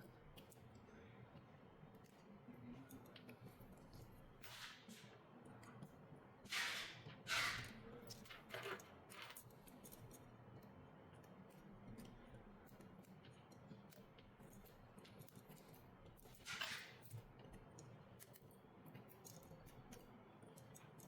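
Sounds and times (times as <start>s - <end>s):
tool scraping strokes: 6.5s - 7.7s.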